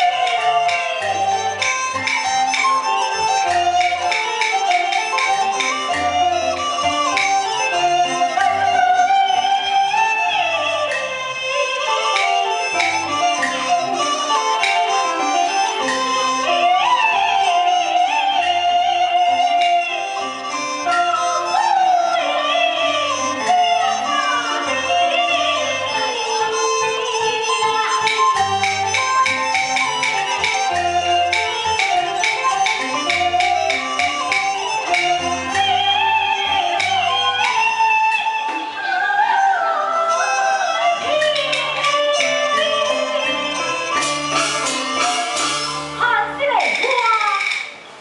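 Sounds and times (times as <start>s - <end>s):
sharp percussion strikes: 0.0s - 38.8s, 41.0s - 48.0s
traditional instruments melody: 0.0s - 48.0s
opera singing with gliding pitch: 38.6s - 42.8s.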